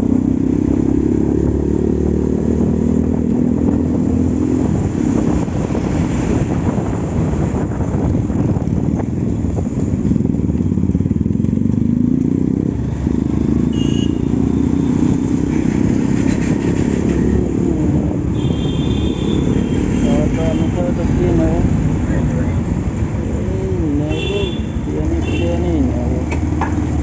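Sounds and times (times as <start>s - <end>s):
motorcycle engine running: 6.6s - 27.0s.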